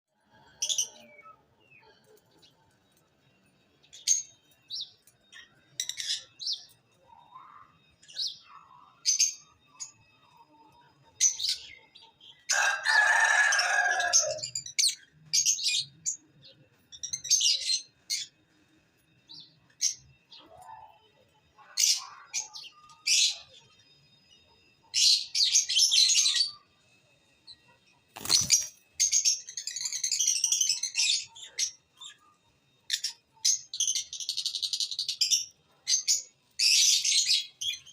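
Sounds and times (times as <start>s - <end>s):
harsh bird squawk: 12.5s - 14.4s
lovebirds chirping: 19.1s - 37.9s.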